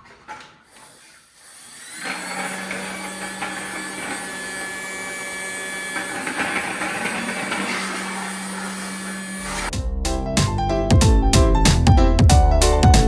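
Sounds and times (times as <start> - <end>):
toy vacuum cleaner motor humming: 1.4 - 9.7.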